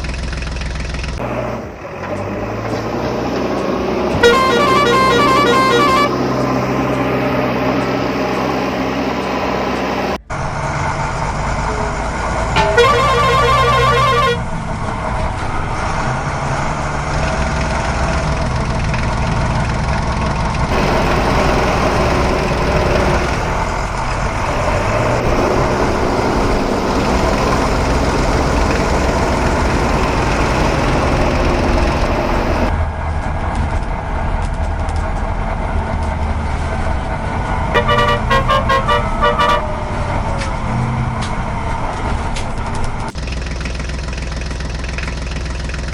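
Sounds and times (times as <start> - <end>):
vehicle engine running: 0.0 - 45.9
short pulsing horn: 4.1 - 6.2, 12.6 - 14.6, 37.8 - 40.4.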